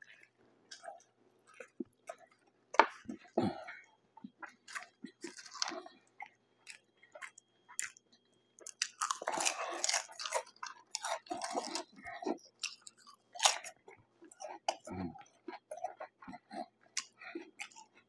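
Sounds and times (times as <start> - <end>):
chewing a sandwich: 0.0 - 18.0
crunching potato chips: 4.5 - 8.0, 8.6 - 18.0.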